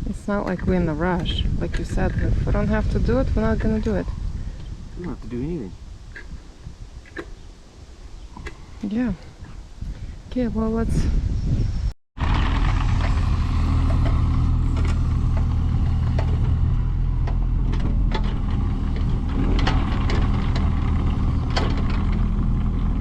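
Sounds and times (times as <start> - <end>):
engine running steadily: 12.2 - 23.0.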